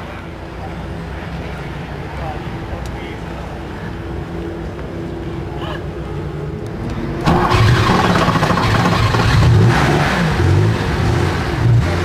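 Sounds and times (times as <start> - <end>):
car engine starting and running: 6.6 - 12.0.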